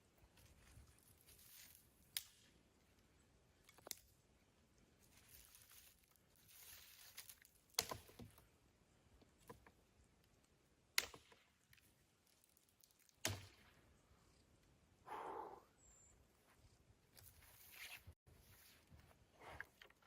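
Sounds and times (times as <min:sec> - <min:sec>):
soft rustle: 0:00.2 - 0:02.1, 0:04.8 - 0:07.7, 0:16.2 - 0:20.0.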